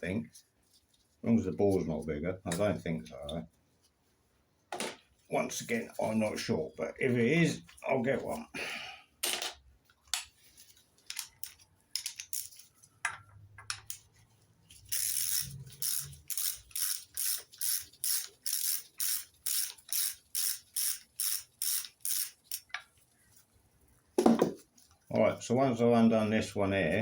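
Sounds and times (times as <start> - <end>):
ratchet wrench ratcheting: 11.1 - 12.6, 14.8 - 22.8.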